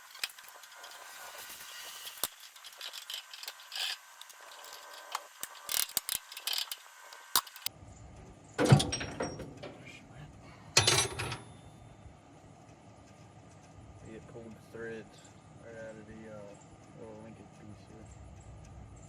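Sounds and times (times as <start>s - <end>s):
metal tools clinking: 8.6s - 10.0s, 10.8s - 11.9s.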